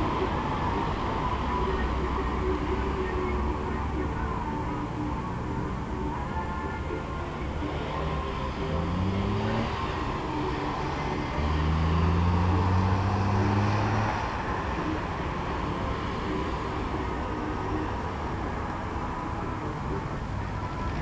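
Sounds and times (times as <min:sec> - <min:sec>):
street traffic noise: 0:00.0 - 0:21.0
vehicle engine accelerating: 0:07.6 - 0:19.2.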